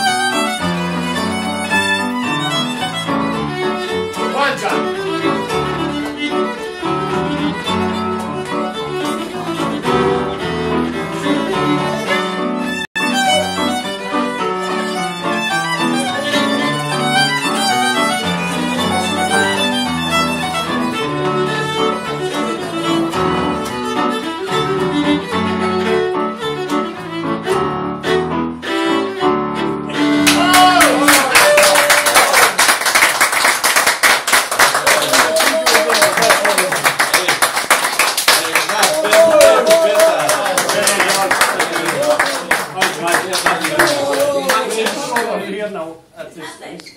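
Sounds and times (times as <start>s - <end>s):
fiddle tune played briskly: 0.0s - 30.8s
loud applause: 30.0s - 45.4s.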